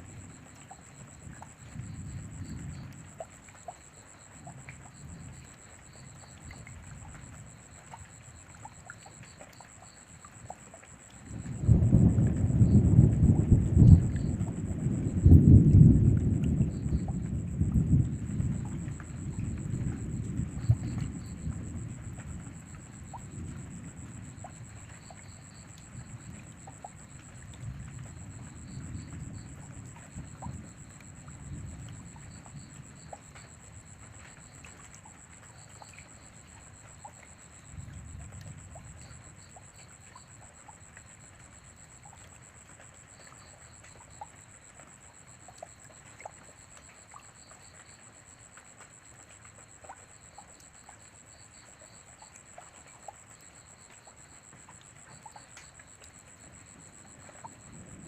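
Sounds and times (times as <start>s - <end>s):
low thunder rumbling: 0.0s - 3.2s, 11.2s - 33.9s, 56.5s - 58.0s
rain falling: 0.0s - 58.0s.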